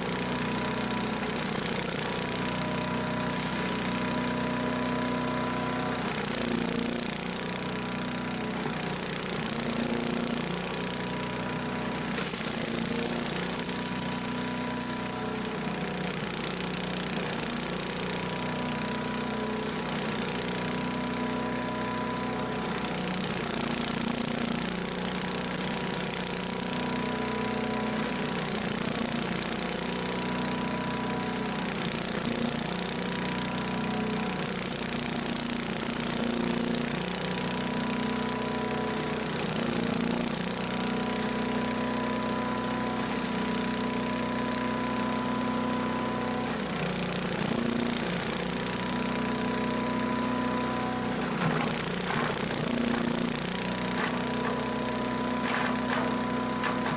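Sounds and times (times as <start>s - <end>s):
chipper shredder engine running: 0.0s - 56.9s
steady hiss of shredding leaves: 0.0s - 56.9s
leaves being shredded: 3.2s - 5.4s, 12.0s - 15.6s, 50.0s - 56.9s.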